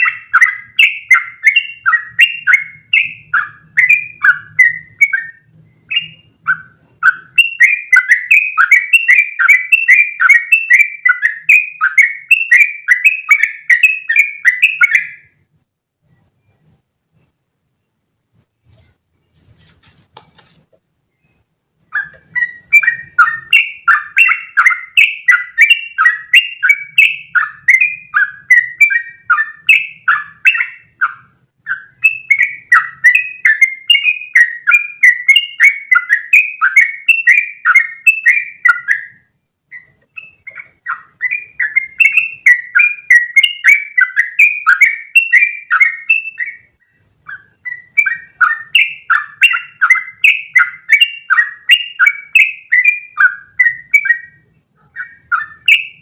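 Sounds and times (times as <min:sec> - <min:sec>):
bulbul singing chattering notes: 0:21.2 - 0:56.0.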